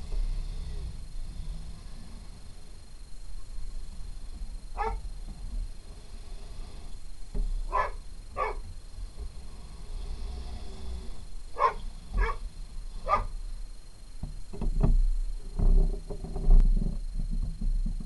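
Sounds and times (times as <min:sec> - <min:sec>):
dog barking: 0:04.8 - 0:05.0, 0:07.7 - 0:08.6, 0:11.6 - 0:12.4, 0:13.0 - 0:13.3.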